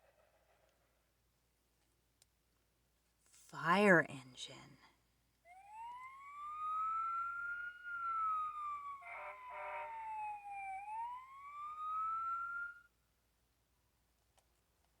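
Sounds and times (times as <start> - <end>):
electronic siren wailing: 5.5 - 12.9
electronic tone burst: 5.6 - 12.8.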